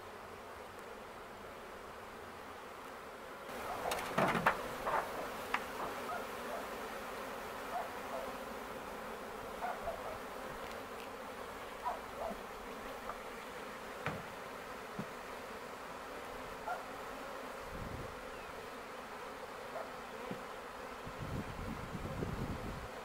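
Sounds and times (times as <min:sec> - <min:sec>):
honey bees buzzing: 0:00.0 - 0:23.0
faint short knocks: 0:14.0 - 0:14.3.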